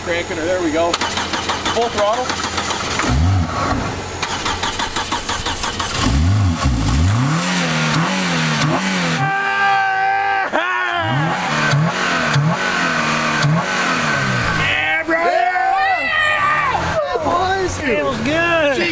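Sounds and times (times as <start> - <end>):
car engine revving: 0.0 - 9.6, 10.9 - 14.8.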